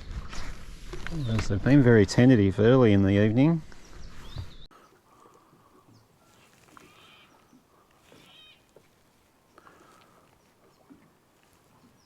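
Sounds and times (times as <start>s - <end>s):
faint animal calls: 4.8s - 9.0s.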